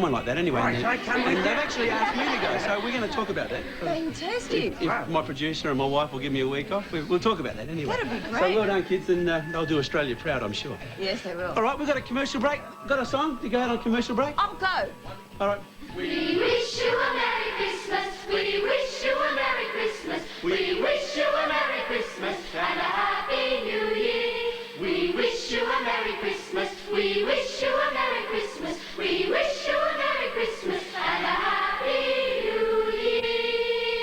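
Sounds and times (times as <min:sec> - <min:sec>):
children's choir singing: 0:00.0 - 0:07.1, 0:15.3 - 0:34.0.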